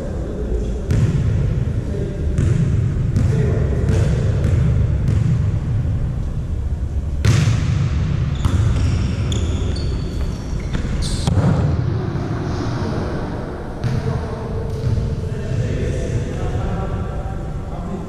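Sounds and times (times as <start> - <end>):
low hall rumble: 0.0 - 18.0
volleyball slaps: 7.2 - 8.9, 11.2 - 11.8
sneakers squeaking on court: 8.3 - 11.4.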